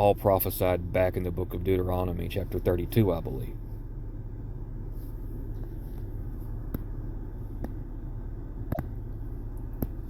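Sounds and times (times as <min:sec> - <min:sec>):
low background rumble: 0:00.0 - 0:10.0.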